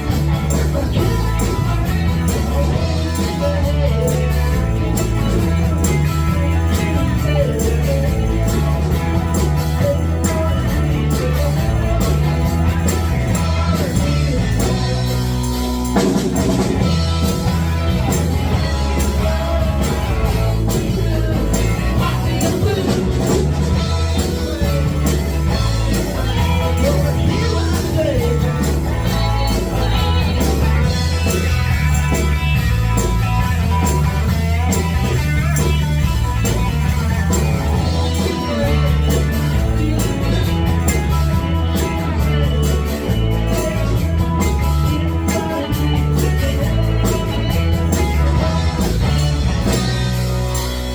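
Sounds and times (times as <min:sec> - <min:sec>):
electric guitar: 0:00.0 - 0:50.9
live rock band playing: 0:00.0 - 0:50.9.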